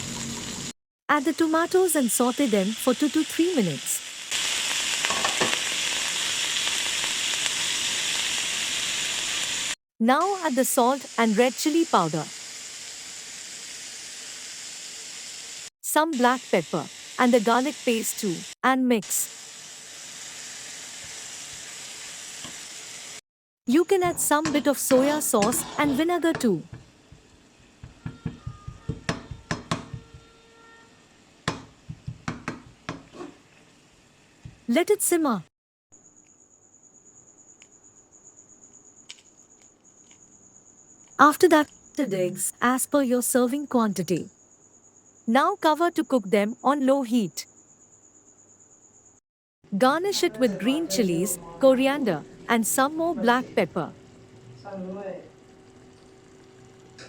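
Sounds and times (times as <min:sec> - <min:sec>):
vegetables sizzling in oil: 0:00.0 - 0:35.4, 0:49.8 - 0:57.0
utensil knocking against pan: 0:26.7 - 0:30.3, 0:31.5 - 0:33.1.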